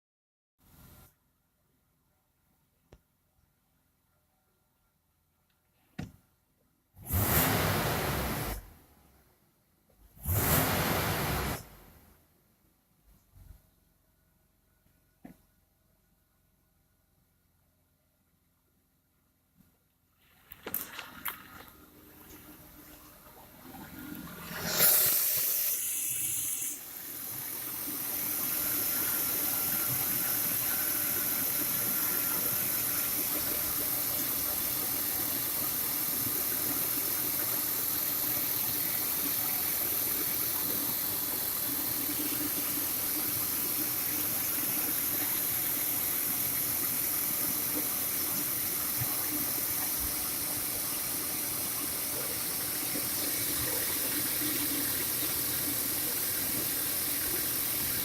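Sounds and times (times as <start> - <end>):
car engine starting and running: 7.0 - 8.9, 10.0 - 12.1, 20.5 - 58.0.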